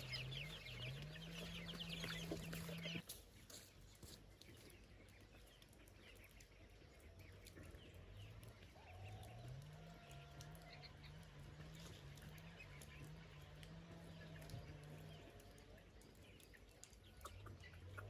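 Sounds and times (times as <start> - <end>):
distant chicken calls: 0.0 - 3.0.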